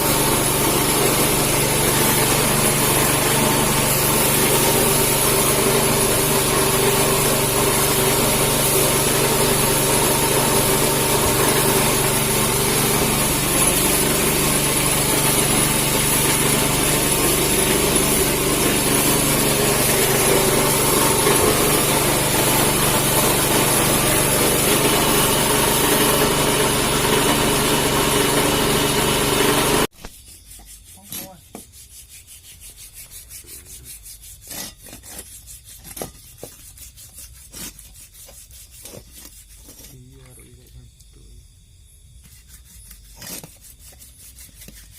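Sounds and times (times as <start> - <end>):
motorised tool running: 0.0 - 29.9
faint scraping strokes: 30.0 - 40.5.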